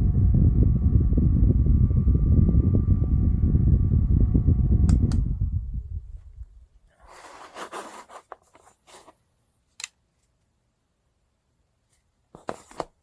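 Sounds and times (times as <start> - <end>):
fan motor whine: 0.0 - 6.6
fan airflow rumble: 0.0 - 7.5
handling rustling and scraping: 6.9 - 10.4, 11.9 - 13.0.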